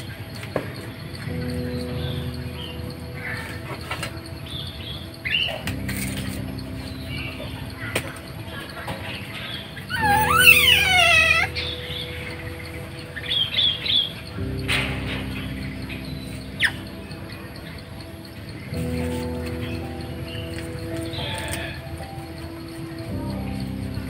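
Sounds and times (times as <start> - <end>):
birds chirping: 0.0 - 24.0
loud wavering bird call: 9.9 - 12.4.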